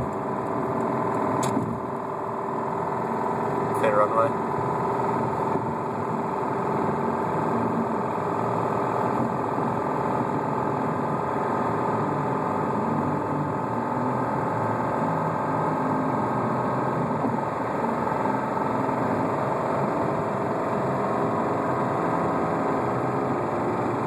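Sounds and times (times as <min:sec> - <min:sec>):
car engine with rod knock: 0:00.0 - 0:01.8.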